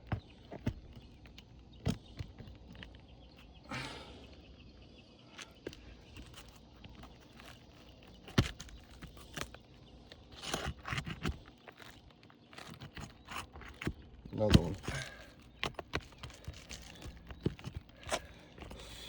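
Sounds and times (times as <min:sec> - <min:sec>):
scraping on roof shingles: 0:06.1 - 0:19.0.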